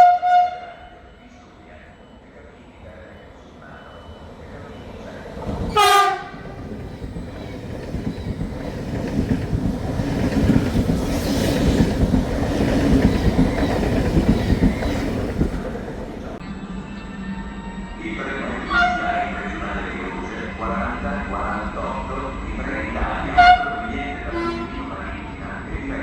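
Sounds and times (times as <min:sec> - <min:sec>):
train horn blast: 0:00.0 - 0:00.9, 0:05.7 - 0:06.6, 0:18.7 - 0:19.2, 0:23.4 - 0:24.9
train rumble and wheel clatter: 0:00.0 - 0:26.0.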